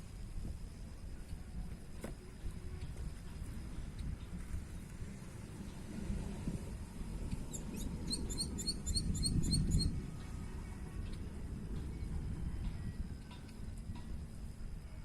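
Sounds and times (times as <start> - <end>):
small bird chirping: 7.3 - 10.0.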